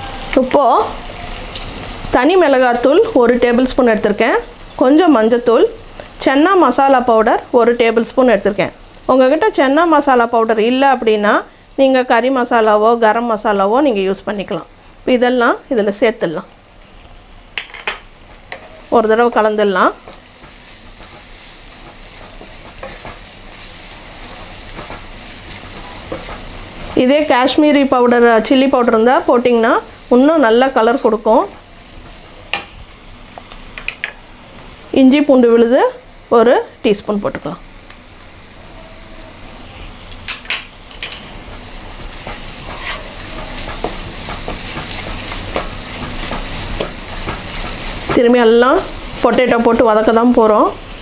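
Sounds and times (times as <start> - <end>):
vegetables sizzling in oil: 0.0 - 51.0
spatula scraping a pan: 42.6 - 48.0.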